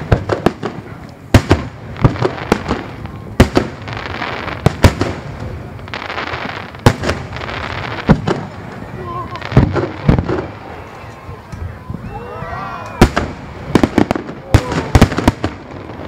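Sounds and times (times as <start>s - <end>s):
firework shells booming: 0.0s - 10.8s, 12.9s - 16.0s.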